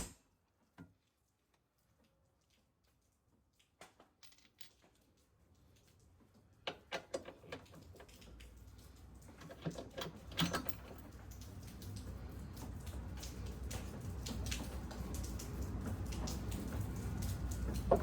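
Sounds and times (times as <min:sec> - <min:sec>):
hand tools clicking and knocking: 0:09.4 - 0:11.0.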